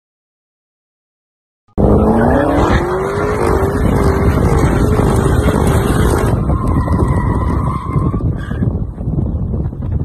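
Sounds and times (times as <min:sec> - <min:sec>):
car engine revving: 0:01.8 - 0:07.8
heavy rushing noise: 0:01.8 - 0:10.0.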